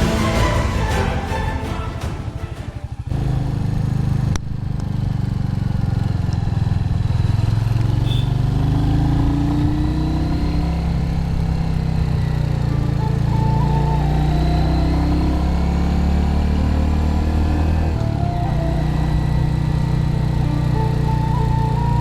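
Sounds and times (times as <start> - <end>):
motorcycle engine running: 2.9 - 13.4.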